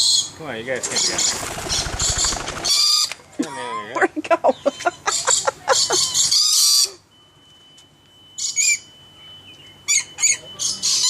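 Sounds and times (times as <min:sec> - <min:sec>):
bird screeching: 0:00.0 - 0:03.2, 0:04.6 - 0:07.0, 0:08.4 - 0:09.0, 0:09.9 - 0:11.0
bird chirping call: 0:04.5 - 0:07.0, 0:08.3 - 0:11.0.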